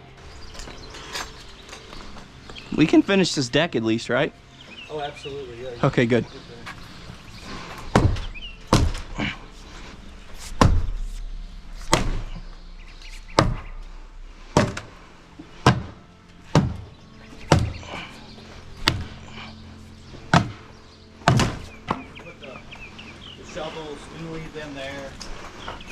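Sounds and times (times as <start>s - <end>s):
demolition whacks and thuds: 11.8s - 12.4s.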